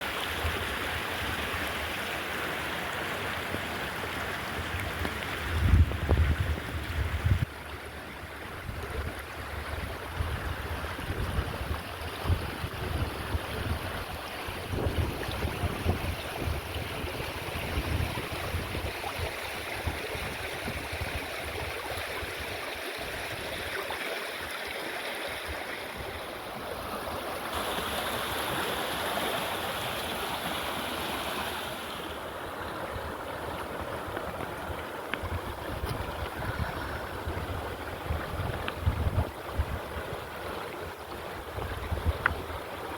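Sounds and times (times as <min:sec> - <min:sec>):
running water: 0:00.0 - 0:42.9
wind buffeting microphone: 0:04.8 - 0:07.6, 0:08.4 - 0:23.6, 0:33.8 - 0:42.7.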